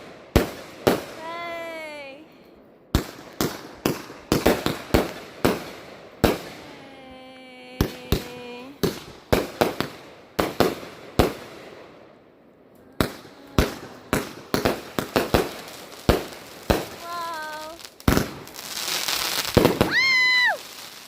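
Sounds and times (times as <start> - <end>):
fireworks bangs and pops: 0.0 - 2.2, 2.9 - 6.9, 7.6 - 12.1, 13.0 - 21.0
firework hiss: 12.9 - 21.0.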